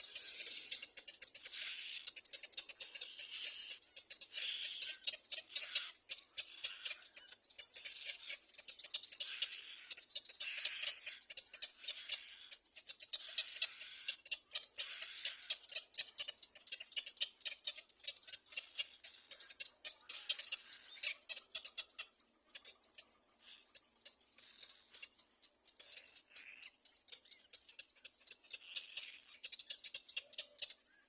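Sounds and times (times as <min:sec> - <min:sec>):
bird chick begging squeaks: 0:00.1 - 0:22.1.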